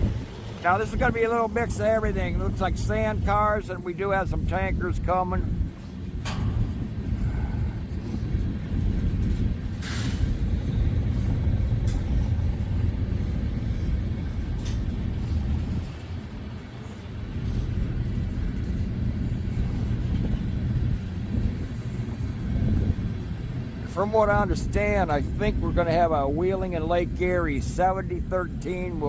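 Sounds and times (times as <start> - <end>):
steel wheels rumbling on rails: 0.0 - 29.0.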